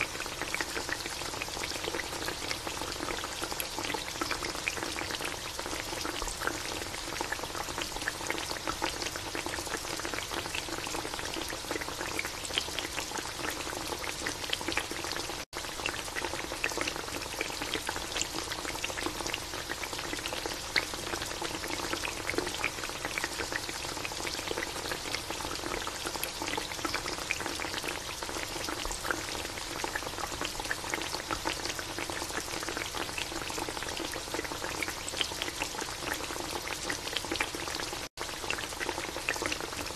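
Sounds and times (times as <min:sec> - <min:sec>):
sauce bubbling and popping in pan: 0:00.0 - 0:39.9.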